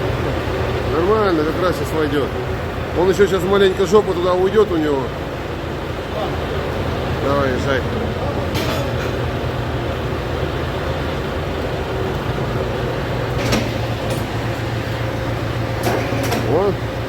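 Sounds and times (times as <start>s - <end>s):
tractor diesel engine running: 0.0s - 17.0s
sharp metallic clank: 8.5s - 9.3s, 13.4s - 16.7s.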